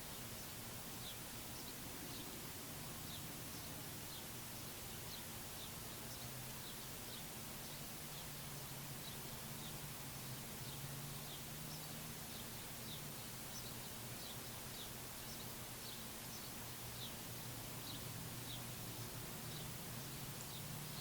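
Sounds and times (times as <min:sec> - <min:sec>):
background hiss: 0:00.0 - 0:21.0
songbirds chirping: 0:00.0 - 0:21.0
steady low hum: 0:00.0 - 0:21.0.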